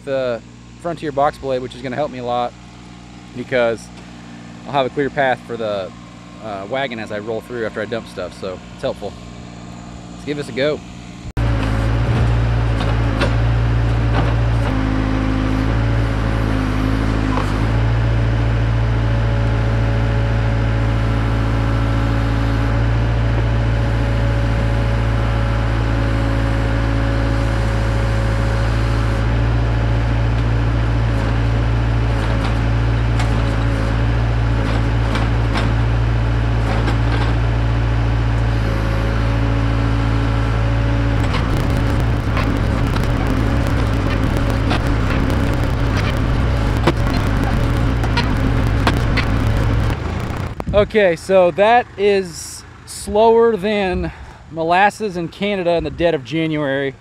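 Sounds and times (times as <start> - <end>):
diesel engine running: 0.0 - 57.0
backhoe digging dirt: 11.4 - 51.9
clicks and knocks: 41.2 - 50.8.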